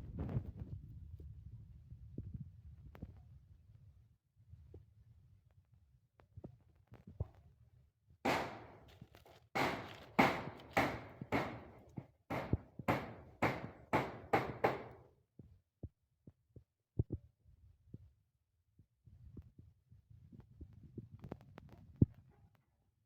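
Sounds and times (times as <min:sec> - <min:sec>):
sharp ringing knocks: 0:08.3 - 0:08.9, 0:09.6 - 0:15.0.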